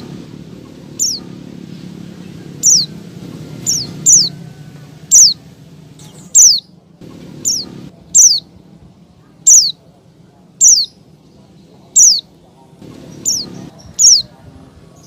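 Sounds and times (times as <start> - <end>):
low steady hum: 0.0 - 15.0
bird high down-slurred chirps: 1.0 - 4.4, 5.0 - 5.4, 6.0 - 6.8, 7.4 - 8.5, 9.4 - 9.8, 10.6 - 11.0, 11.9 - 12.3, 12.9 - 14.3.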